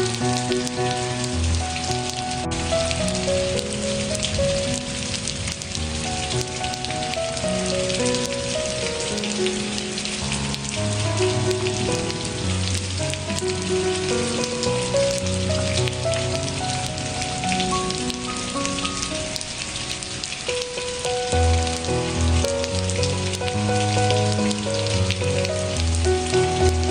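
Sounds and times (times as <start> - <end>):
rain pattering: 0.0 - 26.9
soft slow background music: 0.0 - 26.9.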